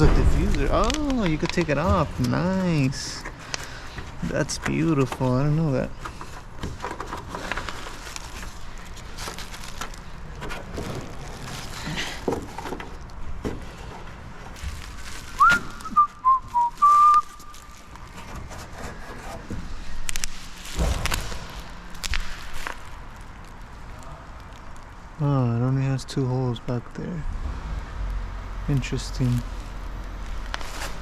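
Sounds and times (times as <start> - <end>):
knocks and rustling of handling: 0.0 - 23.0
person whistling: 15.3 - 17.5.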